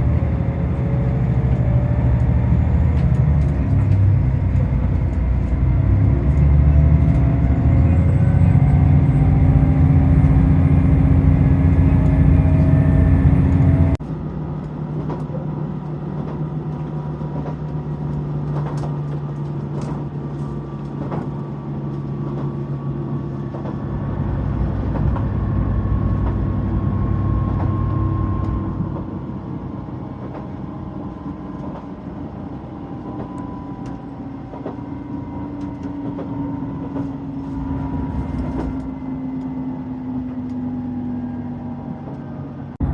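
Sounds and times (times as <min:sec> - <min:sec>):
diesel railcar running: 0:00.0 - 0:42.9.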